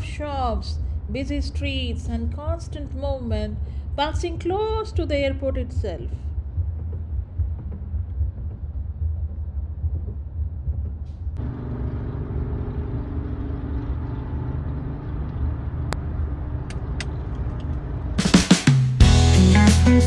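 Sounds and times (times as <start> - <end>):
steady hum: 0.0 - 20.0
car engine and road rumble: 11.0 - 18.3.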